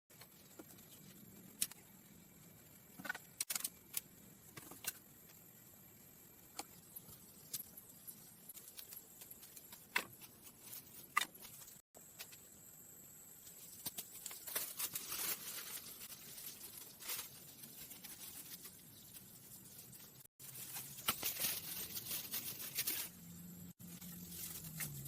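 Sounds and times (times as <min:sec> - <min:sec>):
crackling and rustling: 0:13.4 - 0:25.0.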